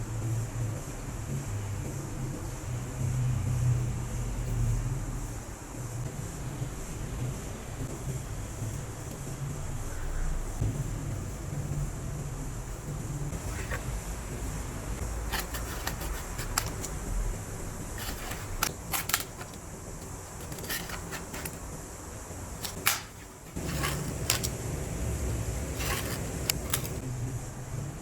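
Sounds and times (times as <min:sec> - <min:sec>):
sharp clicks and knocks: 0:22.6 - 0:24.6.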